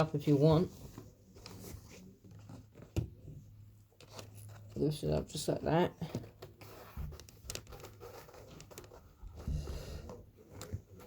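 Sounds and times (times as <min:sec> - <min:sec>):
carpet rustling: 0:00.1 - 0:05.2.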